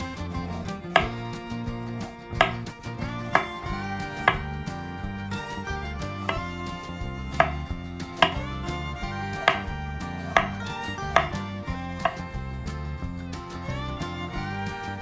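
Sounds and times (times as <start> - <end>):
background music: 0.0 - 15.0
knife chopping on cutting board: 1.0 - 1.2, 2.4 - 2.7, 3.3 - 4.6, 6.2 - 6.5, 7.4 - 8.5, 9.3 - 11.4, 12.0 - 12.3.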